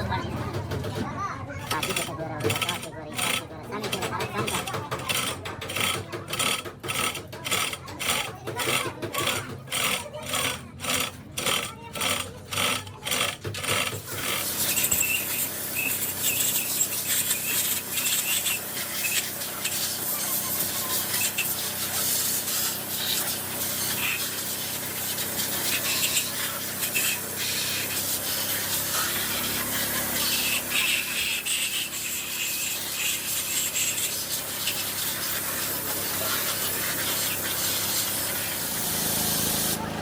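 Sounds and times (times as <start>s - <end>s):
hand scraping on metal: 1.7s - 15.1s.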